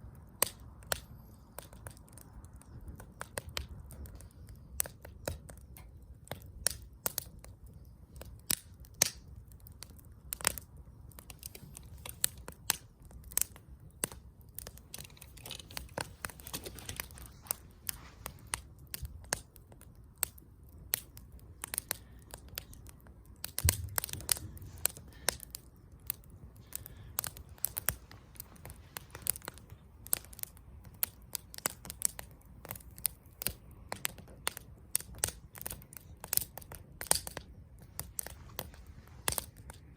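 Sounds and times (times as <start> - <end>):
campfire crackling: 0.0 - 39.9
low rumble of flames: 0.0 - 39.9.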